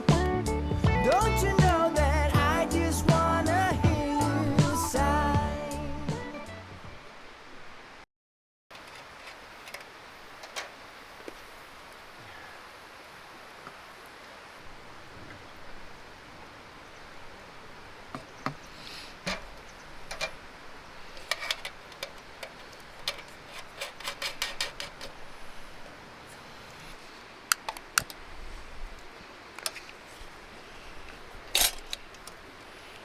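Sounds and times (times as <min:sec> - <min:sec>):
sharp clicks and knocks: 0:27.5 - 0:28.2.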